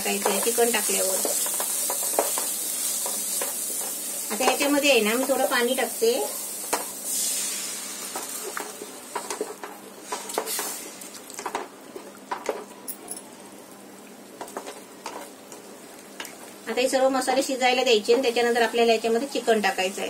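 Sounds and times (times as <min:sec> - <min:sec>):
masala sizzling in pan: 0:00.0 - 0:12.8, 0:13.4 - 0:20.0
spatula scraping and tapping pan: 0:00.1 - 0:05.4, 0:06.6 - 0:07.0, 0:08.1 - 0:10.8.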